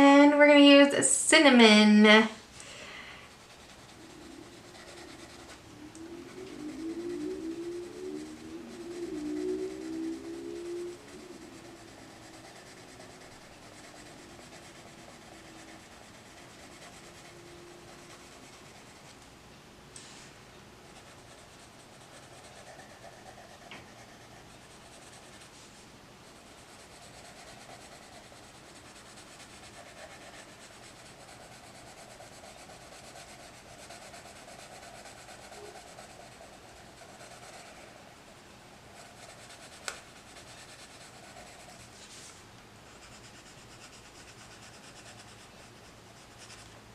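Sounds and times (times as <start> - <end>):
pencil scratching on paper: 3.4 - 5.6, 11.1 - 19.2, 20.9 - 25.6, 26.3 - 38.1, 38.9 - 42.0, 42.8 - 46.7.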